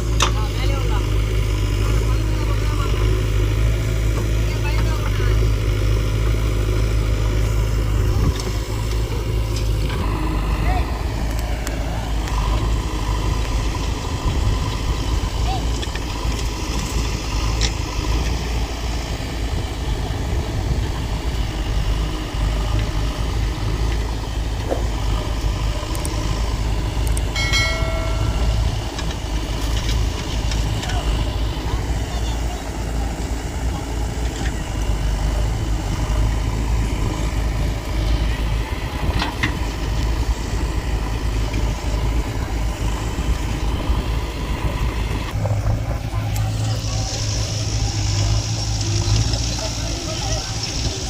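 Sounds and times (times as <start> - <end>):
tractor diesel engine rumbling: 0.0 - 51.0
steady pitched tone: 27.3 - 29.1.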